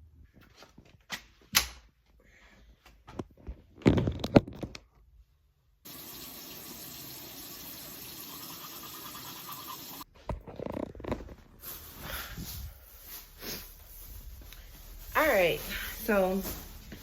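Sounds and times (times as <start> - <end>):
sink tap running: 5.9 - 10.0.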